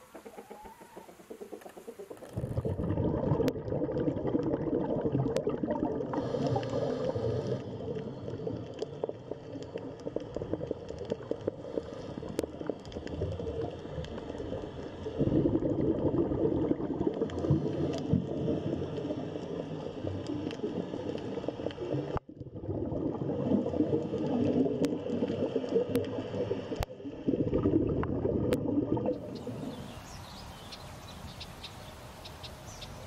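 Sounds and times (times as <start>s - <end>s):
sharp clicks underwater: 0.0s - 15.0s
underwater bubbling: 0.0s - 33.0s.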